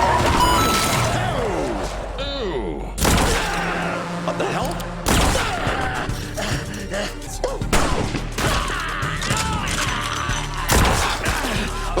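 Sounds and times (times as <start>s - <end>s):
action soundtrack music: 0.0s - 12.0s
rapid gunfire: 3.0s - 4.0s, 5.0s - 5.8s, 10.7s - 11.6s.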